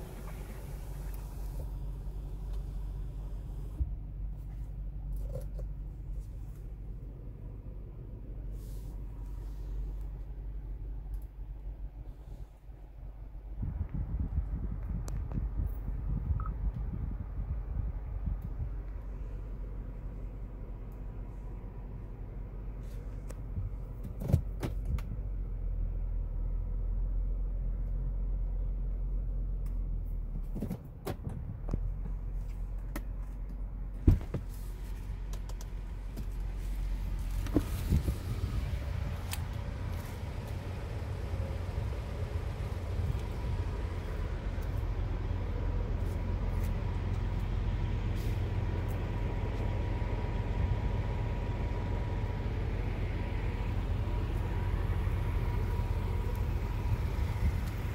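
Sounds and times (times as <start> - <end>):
car engine idling: 0.0 - 24.6, 31.8 - 57.9
car door shutting thump: 34.0 - 34.5.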